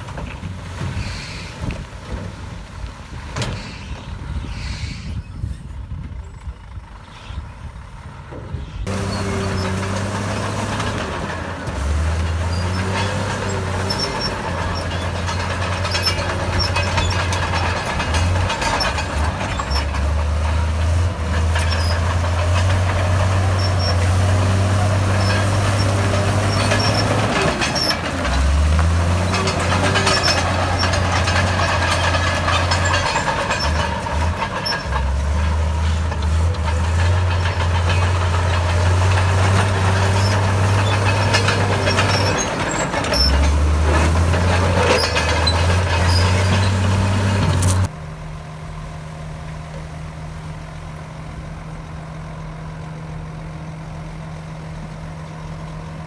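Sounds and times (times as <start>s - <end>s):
wind-like outdoor noise: 0.0s - 8.9s
heavy diesel engine running: 5.1s - 56.0s
light metallic clanks: 8.9s - 47.9s.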